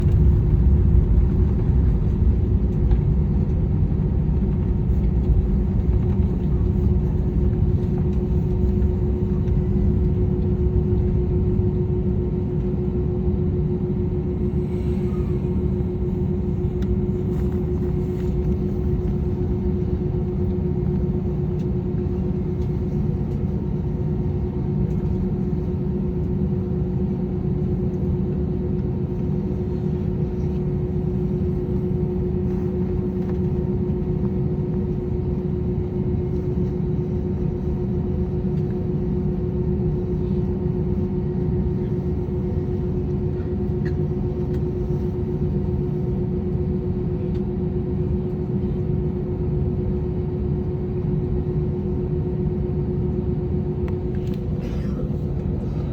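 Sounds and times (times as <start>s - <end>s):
jet engines rumbling in cabin: 0.0s - 55.9s.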